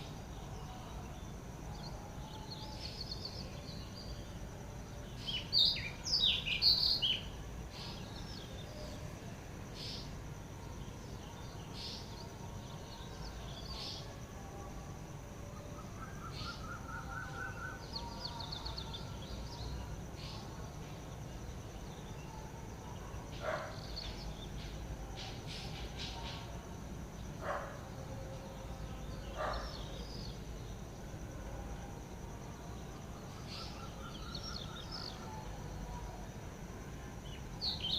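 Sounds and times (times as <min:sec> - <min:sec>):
wild birds chirping: 0:05.0 - 0:14.3, 0:15.6 - 0:30.9, 0:32.8 - 0:36.1, 0:37.2 - 0:37.9.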